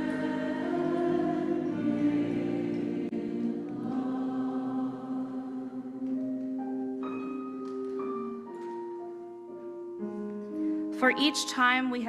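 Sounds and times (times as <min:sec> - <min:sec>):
church choir singing a hymn: 0:00.0 - 0:07.3.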